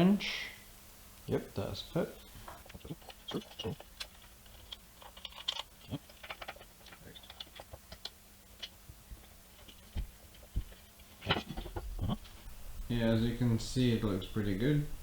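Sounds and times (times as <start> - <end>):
metal parts clicking and tapping: 2.5 - 8.8.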